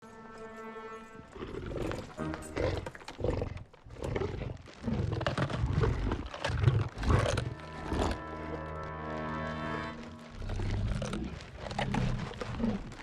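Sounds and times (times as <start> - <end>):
film music: 0.0 - 3.9, 7.0 - 13.0
creature growls and snarling roars: 10.4 - 13.0.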